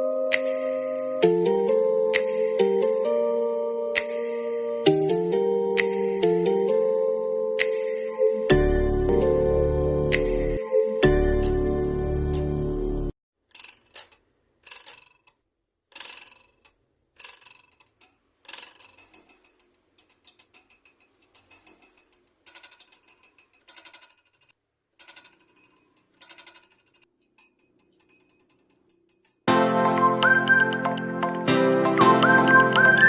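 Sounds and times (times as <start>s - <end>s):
fast mechanical clicking bursts: 13.5s - 29.5s
quiet scattered ticks: 13.6s - 29.5s.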